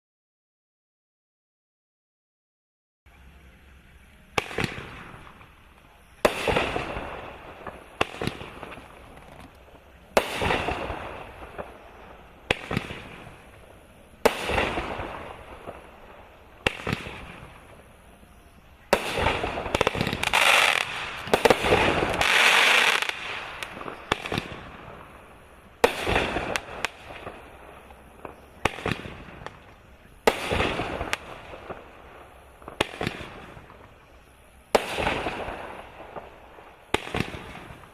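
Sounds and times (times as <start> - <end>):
firework cake shots and bursts: 4.2 - 37.9.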